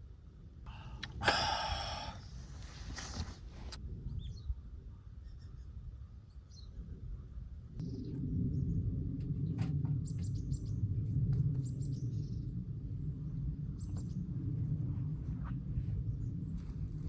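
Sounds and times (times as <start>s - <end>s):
steady low rumble: 7.1s - 17.0s.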